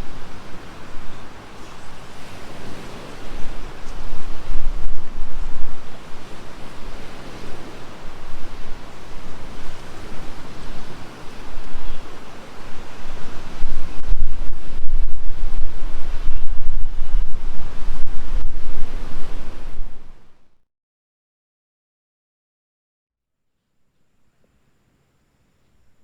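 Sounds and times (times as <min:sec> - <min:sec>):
gusting wind buffeting microphone: 0:00.0 - 0:20.4.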